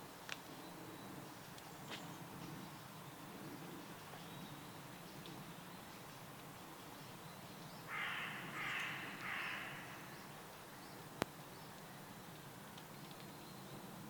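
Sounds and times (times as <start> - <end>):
distant bird chirping: 6.9 - 12.4
bird harsh raspy calls: 7.9 - 10.4.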